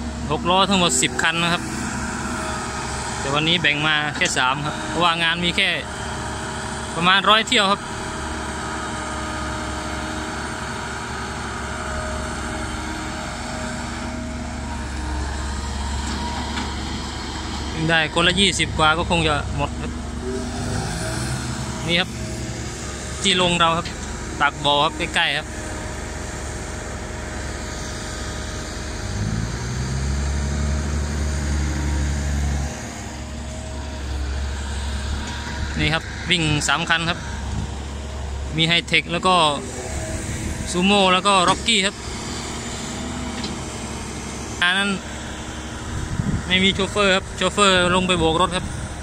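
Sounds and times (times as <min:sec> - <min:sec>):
heavy diesel machinery running: 0:00.0 - 0:49.0.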